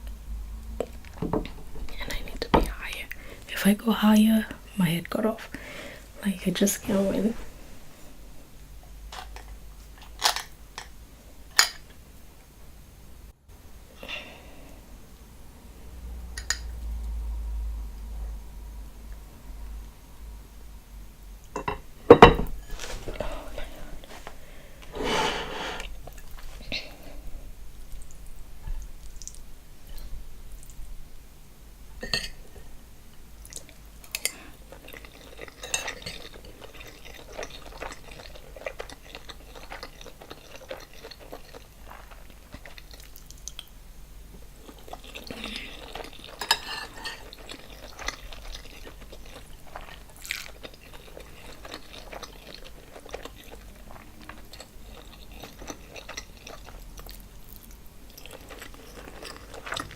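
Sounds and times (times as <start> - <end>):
chewing and wet mouth sounds: 25.8 - 27.2, 27.8 - 30.9, 33.4 - 59.9.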